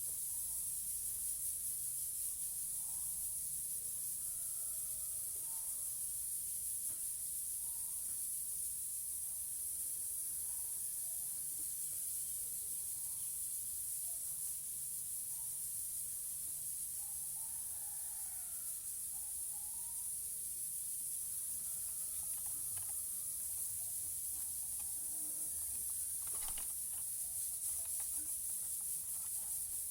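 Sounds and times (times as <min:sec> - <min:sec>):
steady high-pitched hiss: 0:00.0 - 0:29.9.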